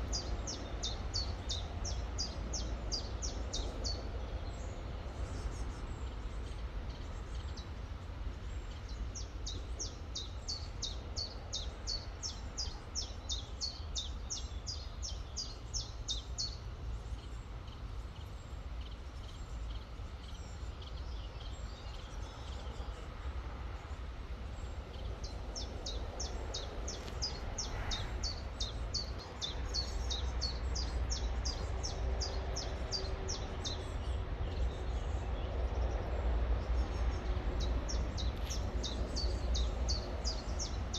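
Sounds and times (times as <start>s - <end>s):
low rumble with hiss: 0.0s - 40.9s
songbird singing: 0.0s - 40.9s.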